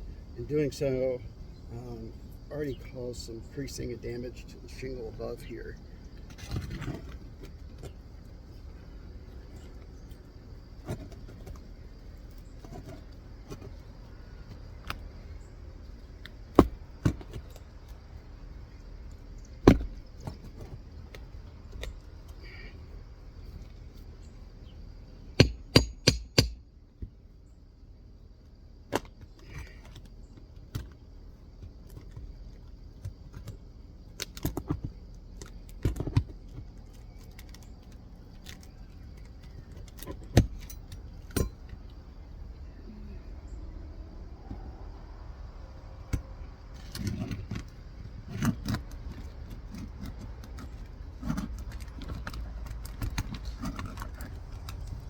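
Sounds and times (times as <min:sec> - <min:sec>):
hammer striking metal: 0:25.4 - 0:26.6.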